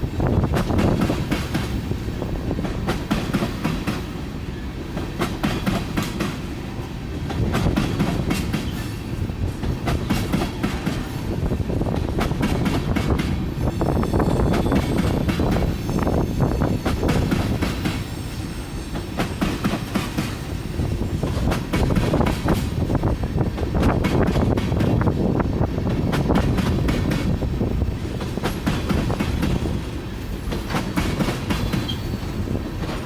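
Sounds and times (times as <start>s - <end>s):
freight train rumbling past: 0.0s - 33.0s
wheels clacking over rail joints: 7.1s - 13.4s, 28.0s - 33.0s.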